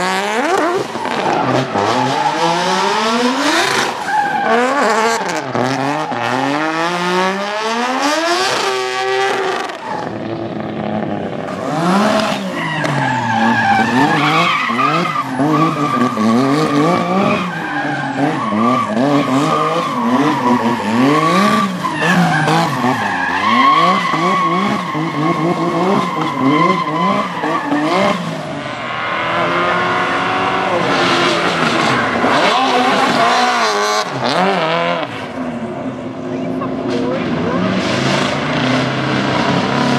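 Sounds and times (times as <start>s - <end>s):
car engine revving: 0.0s - 39.9s
tyre squeal: 12.1s - 28.2s.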